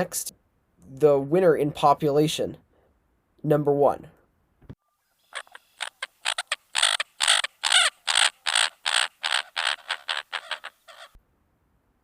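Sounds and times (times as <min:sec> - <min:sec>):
coot calling: 0:05.2 - 0:11.2.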